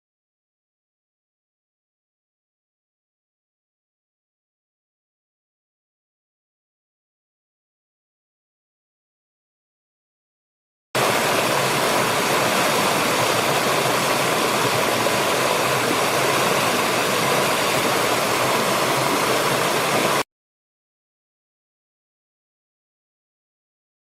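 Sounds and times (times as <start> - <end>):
rushing water: 11.0 - 20.2.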